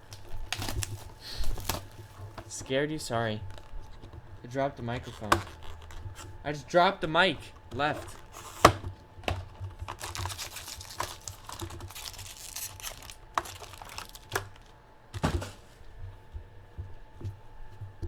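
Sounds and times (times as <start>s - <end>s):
rustling: 0.0s - 18.0s.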